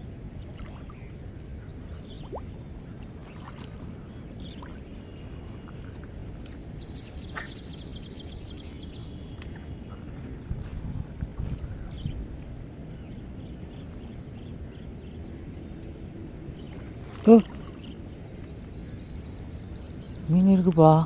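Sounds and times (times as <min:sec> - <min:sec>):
faint clicks: 0:09.4 - 0:09.6.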